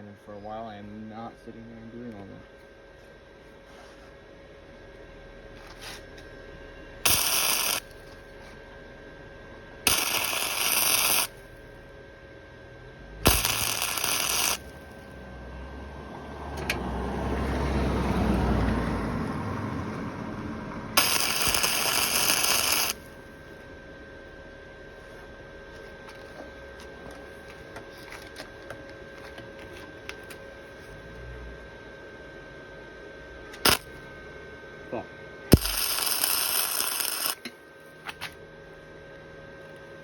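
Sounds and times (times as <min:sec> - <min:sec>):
welder arc crackling: 0:07.0 - 0:08.1, 0:09.9 - 0:11.6, 0:13.2 - 0:15.1, 0:20.9 - 0:23.2, 0:33.6 - 0:34.0, 0:35.5 - 0:37.5.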